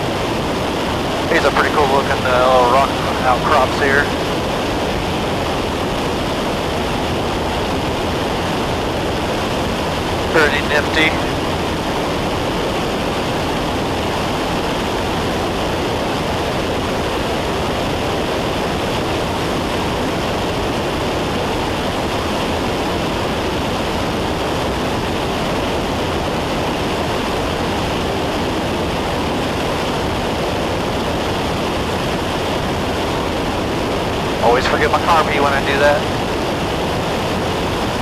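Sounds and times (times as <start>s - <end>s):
rushing air: 0.0s - 10.4s
light aircraft engine drone: 0.0s - 38.0s.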